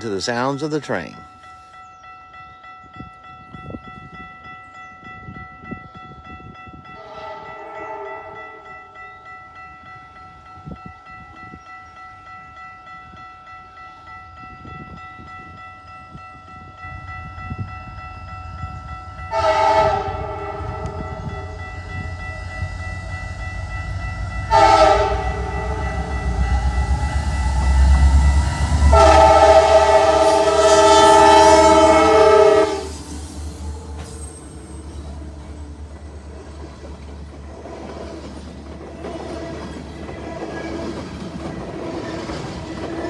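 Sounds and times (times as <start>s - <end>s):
locomotive engines rumbling: 0.0s - 1.3s, 16.2s - 43.0s
locomotive air horn blasts: 7.0s - 8.4s, 19.3s - 21.6s, 24.5s - 33.0s.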